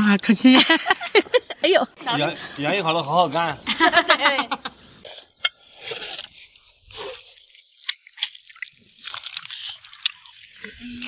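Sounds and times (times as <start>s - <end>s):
man chewing: 5.0s - 11.0s
wet mouth clicks: 5.1s - 11.0s.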